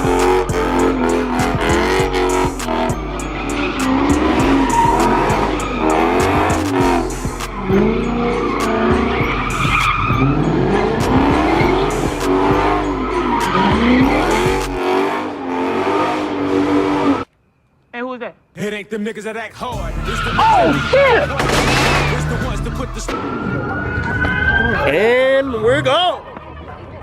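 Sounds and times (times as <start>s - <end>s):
music beat: 0.0s - 15.0s, 19.6s - 23.2s
car engine revving: 0.0s - 17.3s, 19.5s - 25.7s
tyres squealing: 18.9s - 23.2s.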